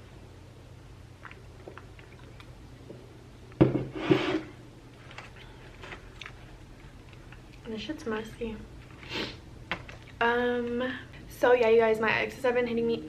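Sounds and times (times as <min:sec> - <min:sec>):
eating clicks and mouth noises: 0:01.2 - 0:02.6.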